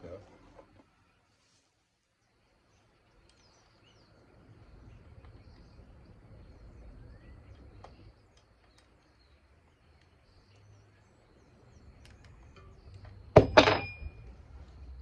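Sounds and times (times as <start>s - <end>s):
metallic clatter with ring: 13.4s - 14.4s.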